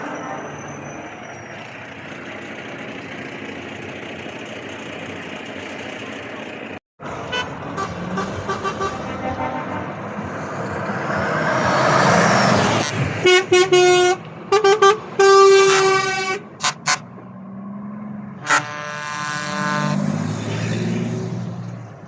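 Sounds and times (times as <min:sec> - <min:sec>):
truck engine rumble: 0:00.0 - 0:22.0
truck horn toots: 0:07.2 - 0:10.2, 0:12.7 - 0:17.2, 0:18.4 - 0:20.2.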